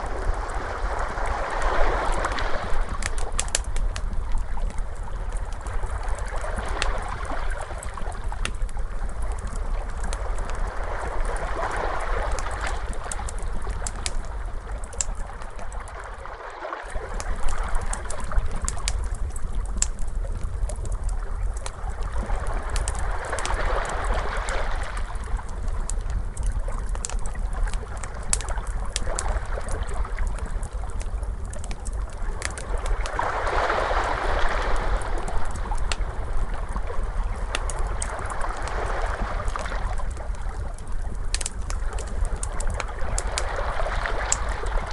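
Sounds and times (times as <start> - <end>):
ocean waves washing: 0.0 - 3.8, 9.9 - 19.0, 32.4 - 40.8
steady low rumble: 0.0 - 16.2, 17.0 - 33.4, 34.0 - 44.9
wood fire crackling: 0.0 - 16.2, 16.9 - 44.9.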